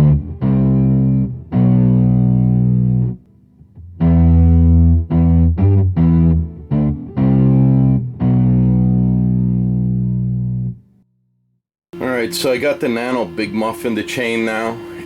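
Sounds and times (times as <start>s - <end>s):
overdriven electric guitar riff: 0.0s - 10.8s.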